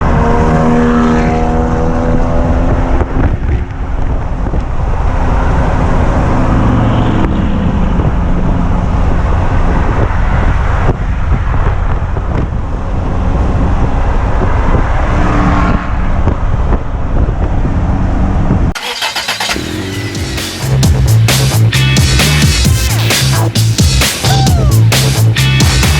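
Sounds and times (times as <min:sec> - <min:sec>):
car engines revving: 0:00.0 - 0:25.9
electronic music with a beat: 0:19.7 - 0:25.9.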